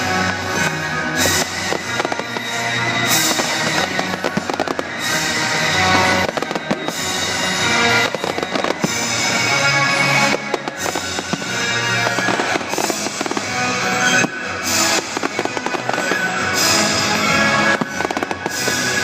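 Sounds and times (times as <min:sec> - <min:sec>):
fireworks bangs and crackling: 0:00.0 - 0:19.0
music playing: 0:00.0 - 0:19.0.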